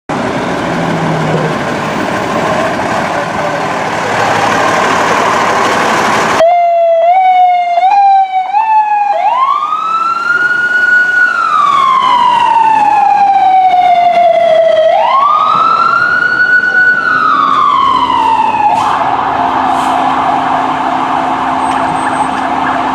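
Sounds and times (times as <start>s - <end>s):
loud rushing noise: 0.1s - 6.4s, 18.1s - 22.9s
emergency vehicle siren: 0.1s - 22.9s.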